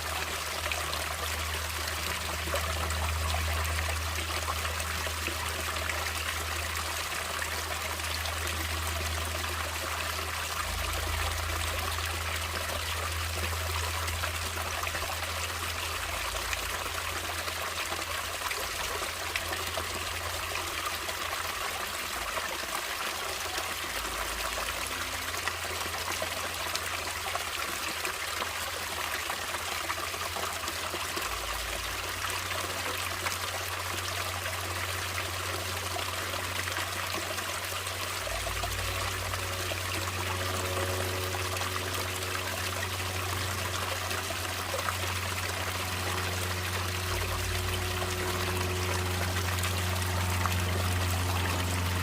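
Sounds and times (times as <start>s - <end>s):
stream water trickling: 0.0s - 52.0s
low rumble: 38.1s - 52.0s.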